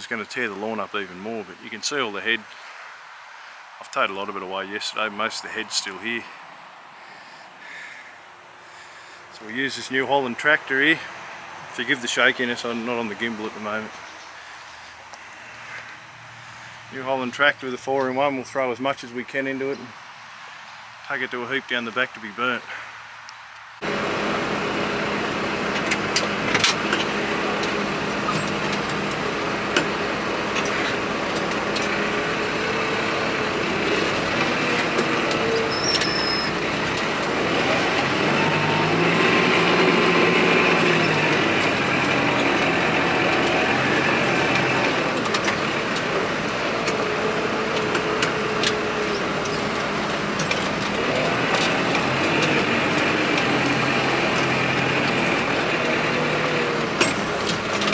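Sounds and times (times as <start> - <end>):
diesel engine running: 8.7 - 14.9, 23.8 - 57.9
sharp clicks and knocks: 24.9 - 57.9.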